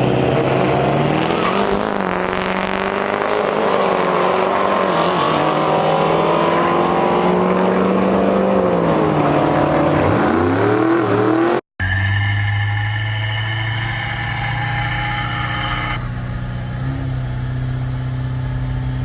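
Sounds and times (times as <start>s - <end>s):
diesel truck engine revving hard: 0.0s - 11.6s
engine running at steady pitch: 6.9s - 19.0s.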